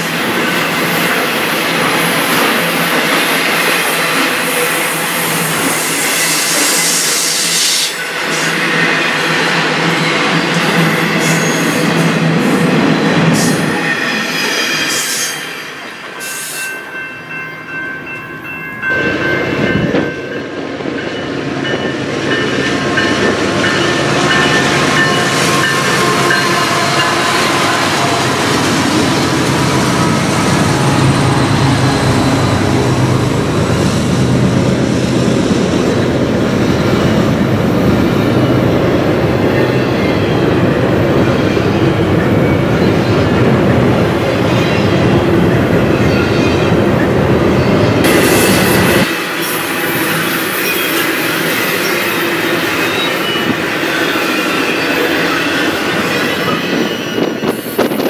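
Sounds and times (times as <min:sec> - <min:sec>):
wheels rumbling on rail: 0:00.0 - 0:58.0
high ringing squealing tones: 0:45.6 - 0:58.0.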